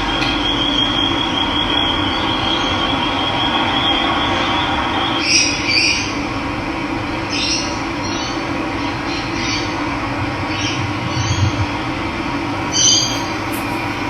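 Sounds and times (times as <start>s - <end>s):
bird calls chirping: 12.6s - 14.0s
running water: 12.6s - 14.0s.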